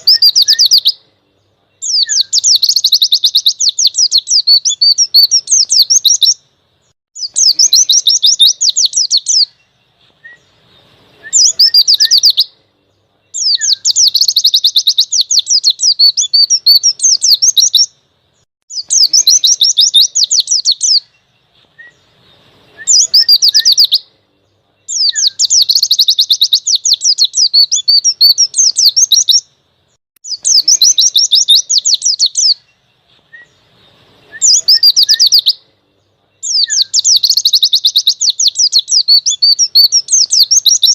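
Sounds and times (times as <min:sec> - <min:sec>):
bird chattering trills: 0:00.0 - 0:01.1, 0:01.8 - 0:06.4, 0:07.2 - 0:09.7, 0:11.2 - 0:12.5, 0:13.3 - 0:17.9, 0:18.7 - 0:21.3, 0:22.7 - 0:24.1, 0:24.8 - 0:29.5, 0:30.2 - 0:32.8, 0:34.2 - 0:35.7, 0:36.4 - 0:40.9
faint bird chirps: 0:00.0 - 0:40.9.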